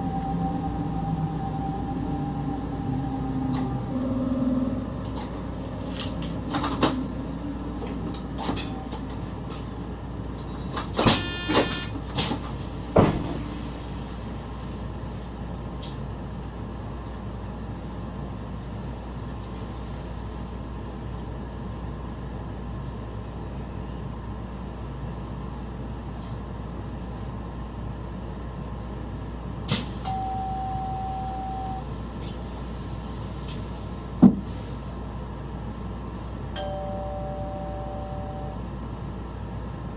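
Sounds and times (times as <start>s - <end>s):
train cab running rumble: 0.0s - 39.9s
clunks and rattles: 10.4s - 13.5s
steady beep: 36.6s - 38.6s.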